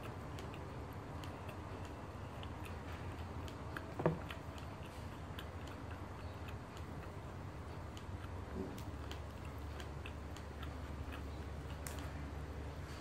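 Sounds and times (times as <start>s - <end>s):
mouth clicks from chewing: 0.0s - 12.4s.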